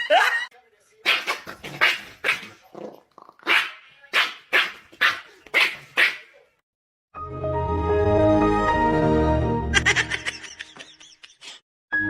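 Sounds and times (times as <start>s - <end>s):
dog barking: 1.0s - 2.6s, 3.4s - 6.4s.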